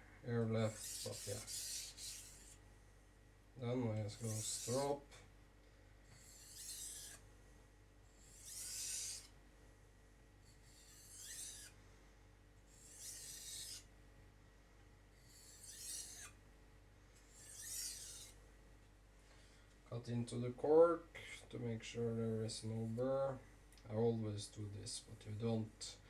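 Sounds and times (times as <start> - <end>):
knife blade stropping: 0.6 - 2.6, 4.2 - 5.0, 6.1 - 7.2, 8.2 - 9.3, 10.5 - 11.8, 12.7 - 13.9, 15.3 - 16.4, 17.4 - 18.4.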